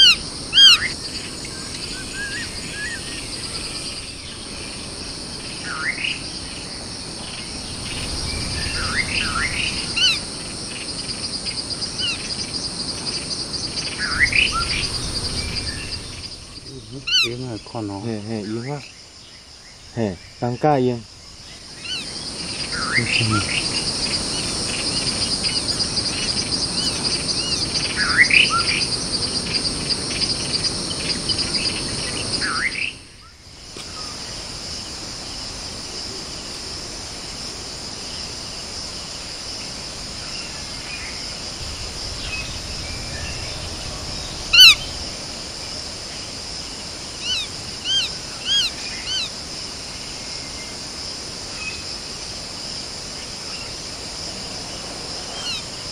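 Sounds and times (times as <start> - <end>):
wild birds calling: 0.0 - 34.4, 40.1 - 46.3, 47.2 - 49.4
high insect chorus: 0.0 - 55.9.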